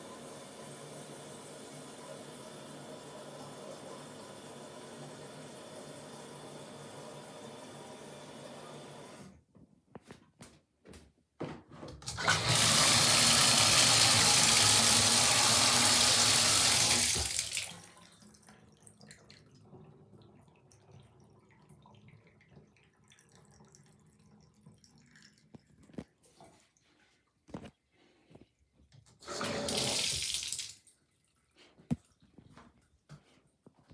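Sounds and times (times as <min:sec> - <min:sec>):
toilet flush rushing water: 0:00.0 - 0:09.3, 0:12.0 - 0:18.0, 0:29.2 - 0:30.7.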